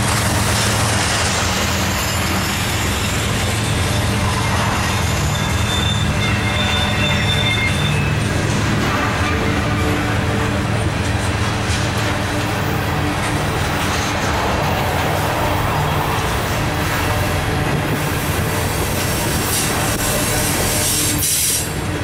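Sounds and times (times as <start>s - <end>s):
train wheels rumbling on rails: 0.0s - 22.0s
high wheel squeal: 0.4s - 10.3s.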